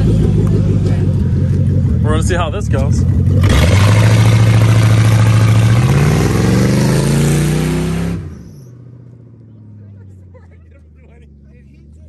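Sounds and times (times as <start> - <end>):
car engine revving hard: 0.0 - 8.5.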